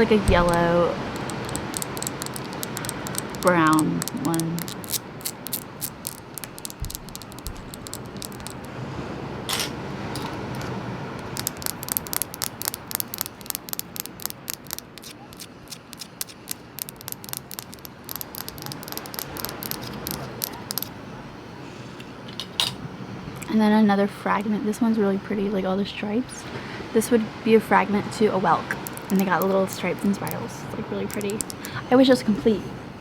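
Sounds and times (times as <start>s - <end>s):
tapping on seashells: 0.0s - 8.7s, 10.2s - 20.9s, 28.7s - 30.4s, 31.0s - 31.8s.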